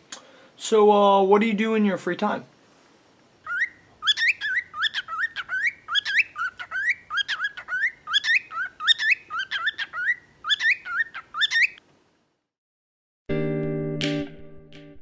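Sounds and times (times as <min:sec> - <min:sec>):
cockatiel chirping whistled notes: 0:03.5 - 0:11.8.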